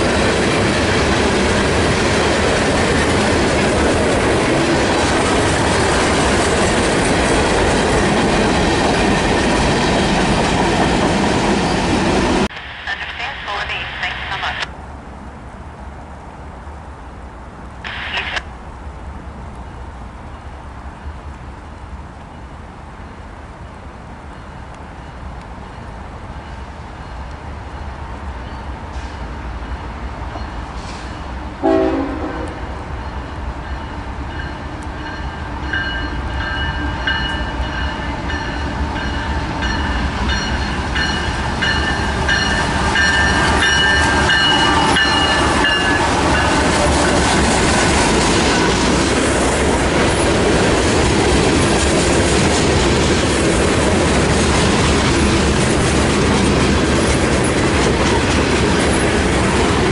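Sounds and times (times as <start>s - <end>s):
freight cars rumbling and clacking: 0.0s - 12.5s, 39.5s - 59.9s
locomotive high whine: 17.8s - 18.6s, 28.9s - 59.9s
train horn toot: 31.6s - 32.8s.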